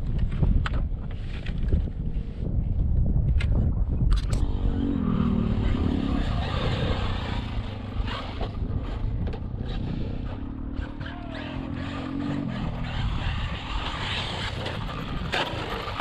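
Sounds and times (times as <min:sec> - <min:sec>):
low rumble: 0:00.0 - 0:16.0
electric toy truck motor whine: 0:04.4 - 0:16.0.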